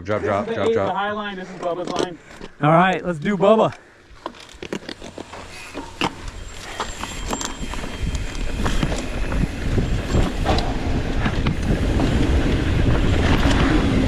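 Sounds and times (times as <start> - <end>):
knobby tyres rolling over dirt: 0.2 - 14.0
bike chain and frame rattling: 3.1 - 14.0
wind rumbling on microphone: 5.9 - 14.0.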